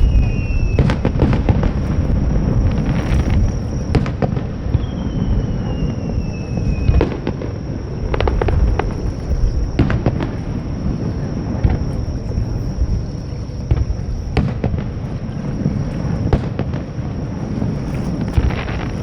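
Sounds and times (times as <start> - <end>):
falling firework whistle: 0.0 - 19.0
firework cracks: 0.0 - 19.0
fireworks rumbling bursts: 0.0 - 19.0.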